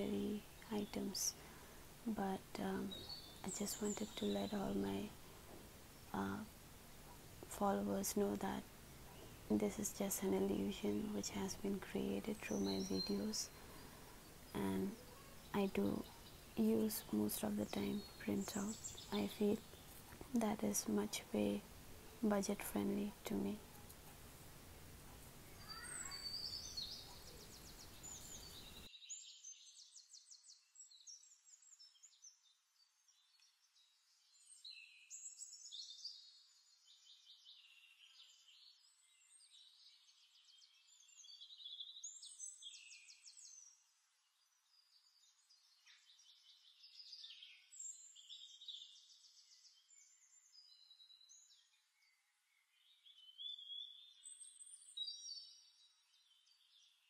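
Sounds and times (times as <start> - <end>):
light hiss: 0.0 - 28.9
songbirds chirping and trilling: 0.0 - 57.0.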